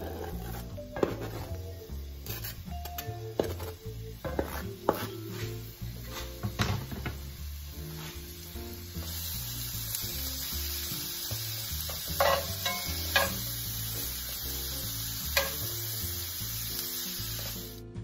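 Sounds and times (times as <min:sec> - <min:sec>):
metal spatula scraping a pan: 0:00.0 - 0:06.4, 0:11.9 - 0:13.6, 0:15.3 - 0:15.7
background music: 0:00.0 - 0:18.0
vegetables sizzling in oil: 0:00.0 - 0:18.0.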